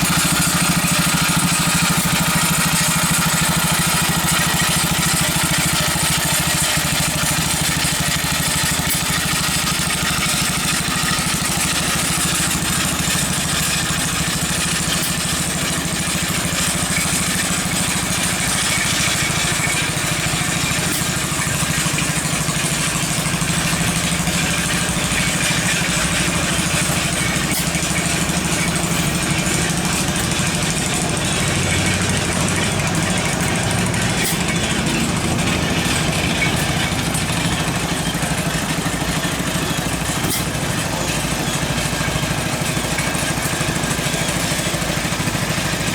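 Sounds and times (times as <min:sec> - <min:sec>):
small tractor engine running: 0:00.0 - 0:45.9.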